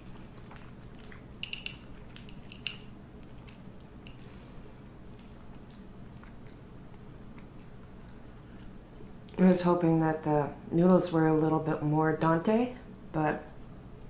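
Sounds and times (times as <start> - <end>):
faint steady hum: 0.0 - 14.0
metal utensil clinking on dish: 1.4 - 2.9.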